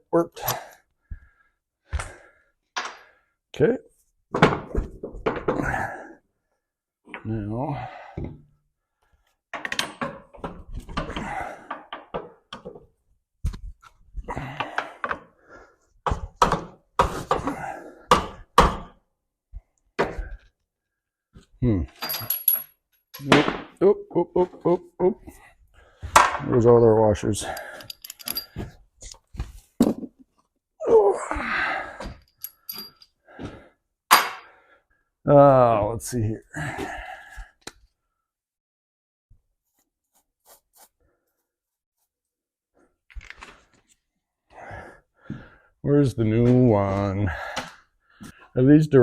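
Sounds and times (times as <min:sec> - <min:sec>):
metal parts clinking: 0:22.0 - 0:23.3, 0:27.4 - 0:28.7, 0:32.2 - 0:33.1
metal tools clanking: 0:22.0 - 0:23.3, 0:27.4 - 0:28.7, 0:32.2 - 0:33.1.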